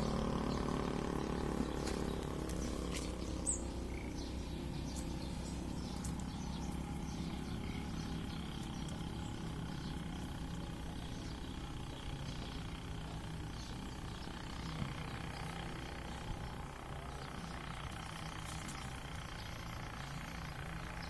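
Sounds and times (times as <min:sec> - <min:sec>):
high bird chirp: 0:00.0 - 0:16.5
steady low hum: 0:00.0 - 0:21.0.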